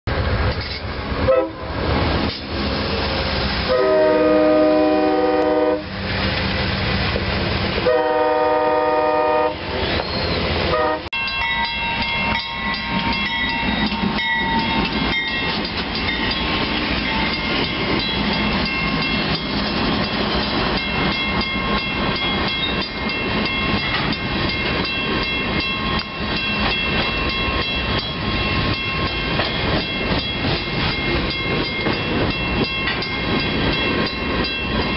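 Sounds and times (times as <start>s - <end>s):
train rumbling and clattering past: 0.1s - 34.9s
locomotive air horn blasts: 1.3s - 1.7s, 3.7s - 5.9s, 7.8s - 9.6s, 10.7s - 11.1s.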